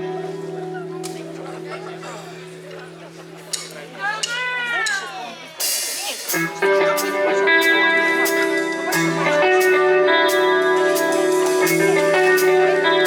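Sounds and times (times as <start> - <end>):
guitar melody: 0.0 - 5.0, 6.3 - 13.0
drum and cymbal hits: 2.7 - 13.0.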